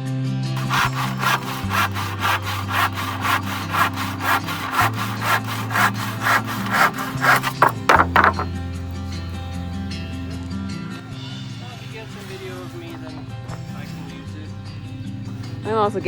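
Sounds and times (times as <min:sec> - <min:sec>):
hand saw cutting wood: 0:00.6 - 0:08.6.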